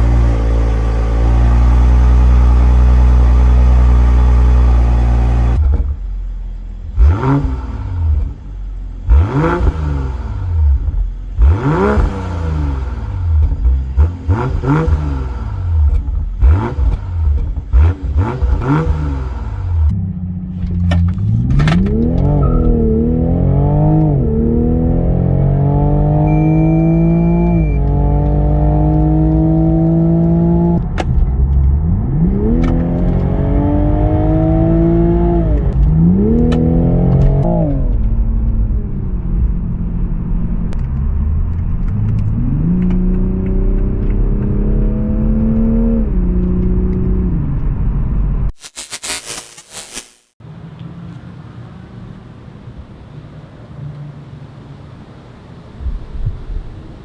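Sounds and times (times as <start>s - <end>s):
car engine accelerating hard: 6.9s - 8.4s, 9.0s - 38.8s.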